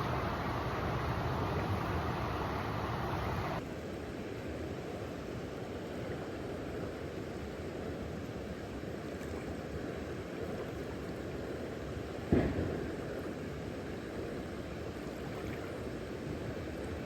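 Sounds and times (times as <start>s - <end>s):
low outdoor rumble: 0.0s - 3.6s.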